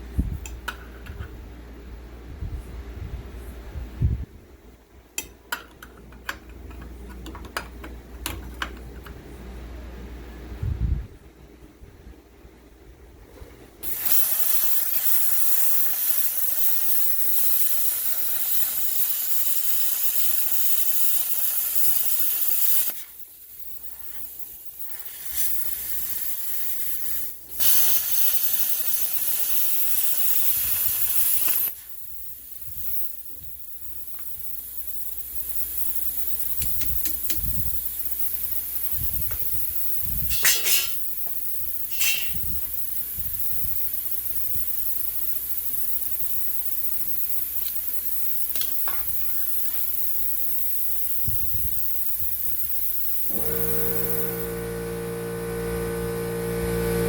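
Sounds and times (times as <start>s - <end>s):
loud hissing: 13.8s - 54.5s.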